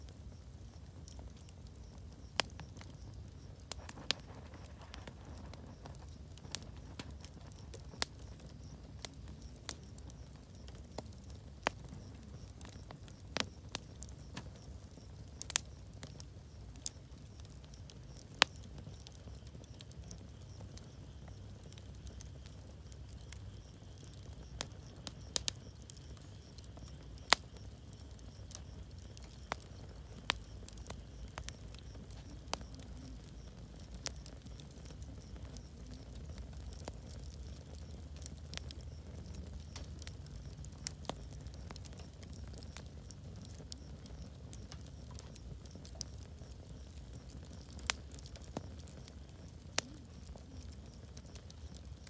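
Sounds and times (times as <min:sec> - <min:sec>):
campfire crackling and popping: 0:00.0 - 0:52.0.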